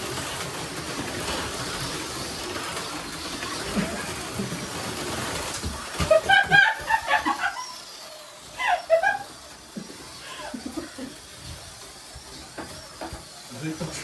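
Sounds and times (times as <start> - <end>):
slot cars running on track: 0.0 - 14.0
high-pitched voice laughing: 6.0 - 7.8, 8.5 - 9.4.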